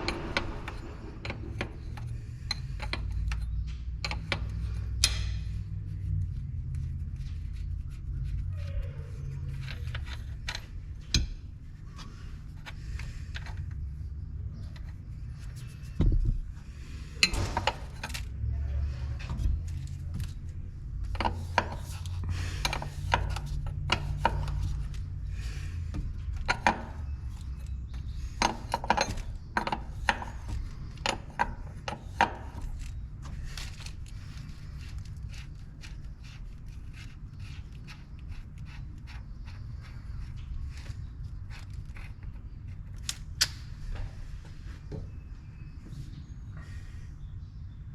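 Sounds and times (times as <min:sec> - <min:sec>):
metal scraping: 0:00.0 - 0:03.0
low hum: 0:00.0 - 0:31.7.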